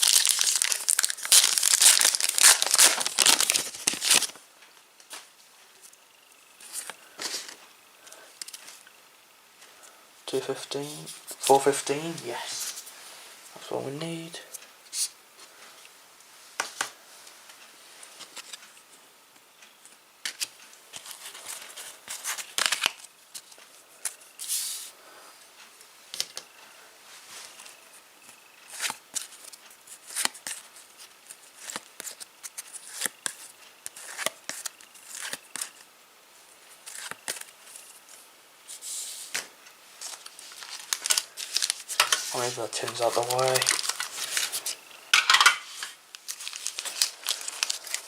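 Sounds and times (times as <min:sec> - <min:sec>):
wrapper crinkling: 0:00.0 - 0:04.4, 0:21.0 - 0:23.6, 0:40.0 - 0:48.0
wrapper tearing: 0:00.0 - 0:04.4, 0:22.4 - 0:23.0, 0:40.0 - 0:44.8, 0:45.8 - 0:48.0.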